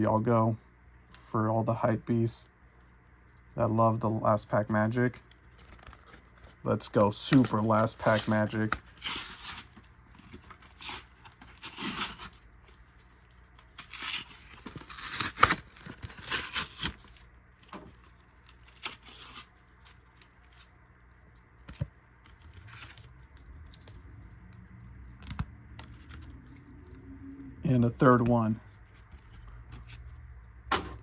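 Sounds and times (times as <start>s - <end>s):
card packaging ripping: 7.2s - 17.3s, 18.0s - 20.7s, 21.6s - 24.0s.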